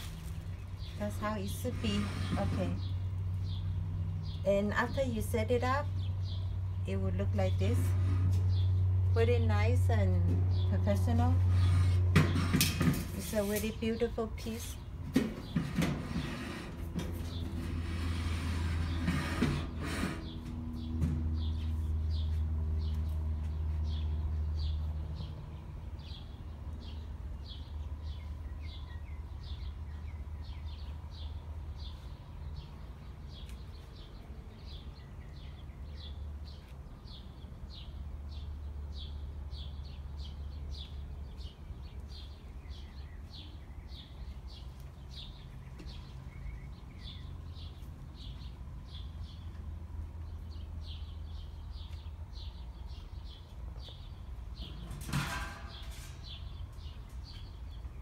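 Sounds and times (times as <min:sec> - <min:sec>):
bird chirping: 0:00.0 - 0:09.7, 0:19.9 - 0:55.0.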